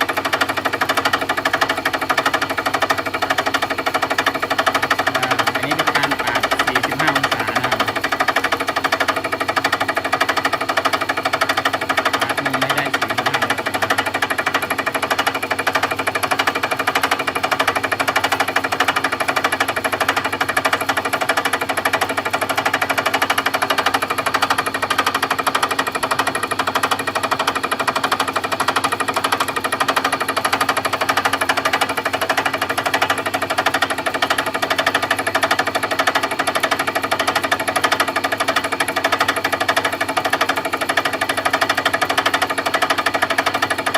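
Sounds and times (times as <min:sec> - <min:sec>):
milling cutter chattering: 0:00.0 - 0:25.8.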